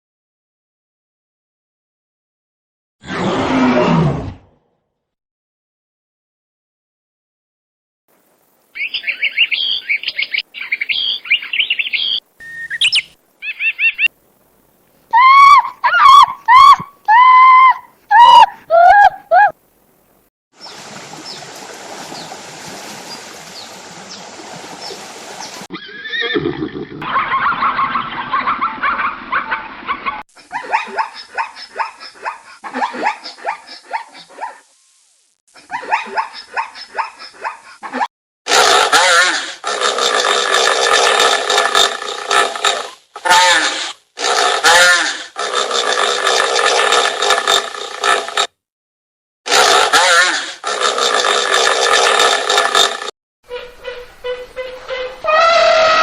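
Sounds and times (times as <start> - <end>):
small bird chirping: 8.7 - 14.1
animal yelping: 15.1 - 19.6
animal pitched calls: 15.2 - 19.6, 35.6 - 48.2, 49.5 - 51.7.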